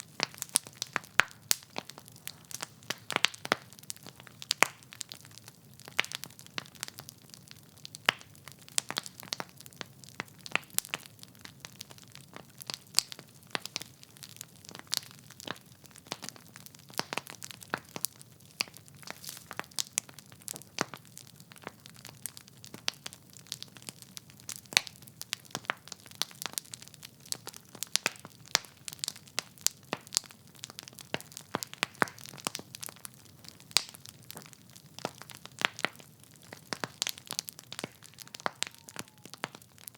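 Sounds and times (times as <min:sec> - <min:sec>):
logs crackling and popping: 0:00.0 - 0:39.9.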